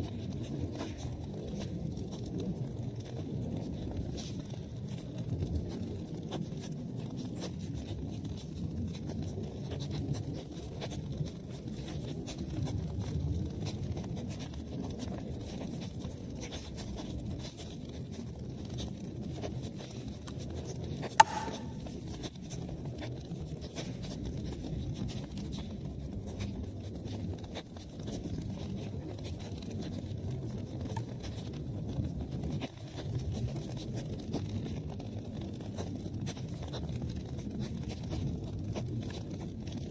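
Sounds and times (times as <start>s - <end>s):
loud sharp pop: 21.2s - 21.9s.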